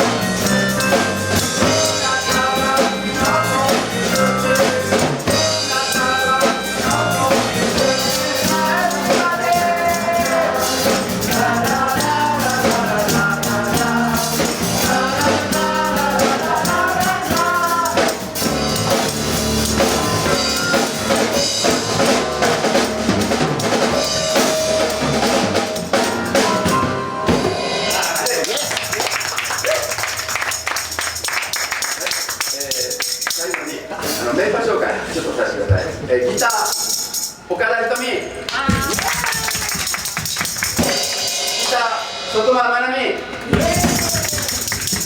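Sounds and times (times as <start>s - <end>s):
drum kit beat: 0.0s - 34.4s, 38.6s - 45.0s
live band playing: 0.0s - 34.6s, 38.3s - 45.0s
person singing: 0.8s - 18.7s, 43.5s - 44.8s.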